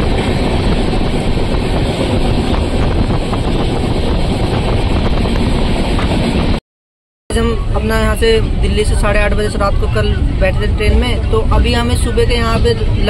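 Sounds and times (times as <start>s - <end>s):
air rushing through window: 0.0s - 6.6s
train wheels rumbling on rails: 0.0s - 6.6s, 7.3s - 13.0s.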